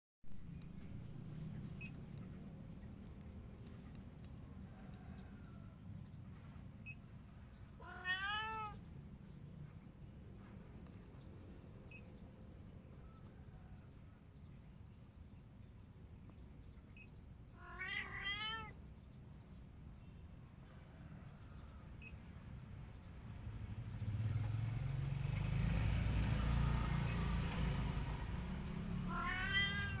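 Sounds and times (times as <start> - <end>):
cat meowing: 7.8 - 8.8, 17.5 - 18.8, 29.0 - 30.0.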